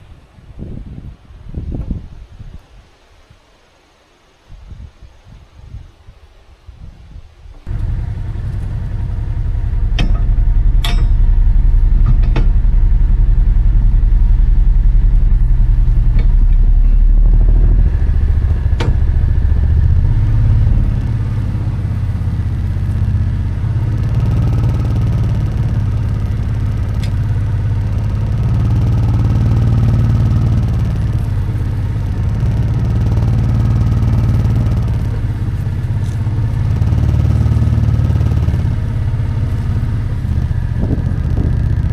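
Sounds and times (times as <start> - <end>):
engine running under load: 7.6 - 41.9
sharp metal clanks: 8.1 - 13.1.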